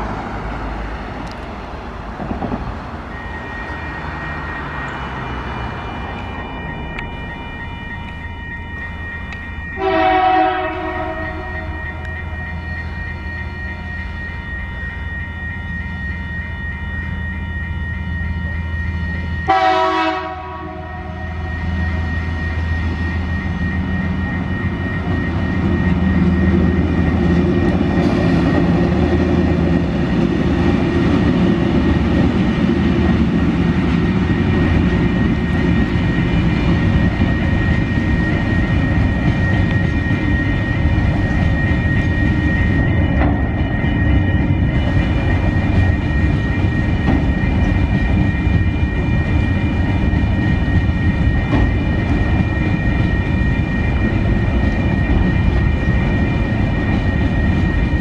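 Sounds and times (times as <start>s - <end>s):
locomotive engine drone: 0.0s - 58.0s
rail noise: 0.0s - 58.0s
locomotive horn blasts: 3.1s - 26.8s.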